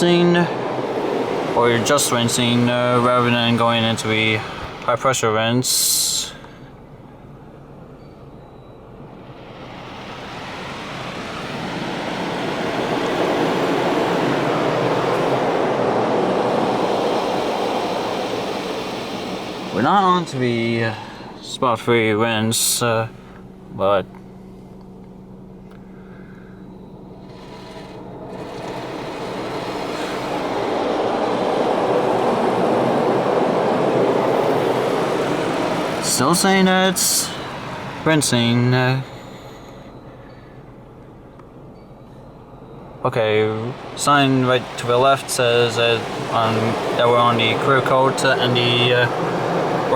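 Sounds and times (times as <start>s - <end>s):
car wash spray hissing: 0.0s - 5.0s, 9.2s - 21.4s, 27.0s - 39.9s, 43.1s - 49.9s.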